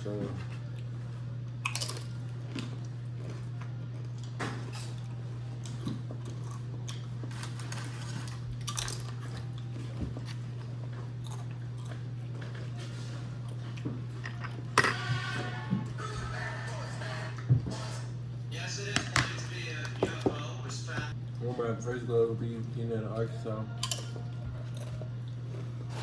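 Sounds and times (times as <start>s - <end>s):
steady low hum: 0.0s - 26.0s
person chewing food: 0.4s - 14.8s, 23.8s - 26.0s.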